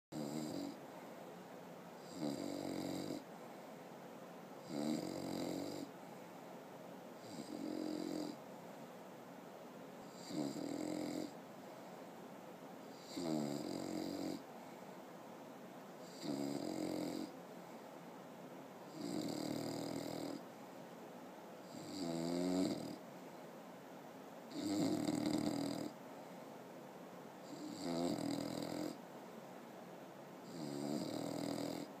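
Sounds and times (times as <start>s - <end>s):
dog snoring: 0.1s - 0.8s, 2.0s - 3.3s, 4.6s - 5.9s, 7.2s - 8.4s, 10.0s - 11.4s, 12.9s - 14.4s, 16.0s - 17.4s, 18.9s - 20.4s, 21.6s - 23.0s, 24.5s - 26.0s, 27.4s - 29.0s, 30.4s - 32.0s.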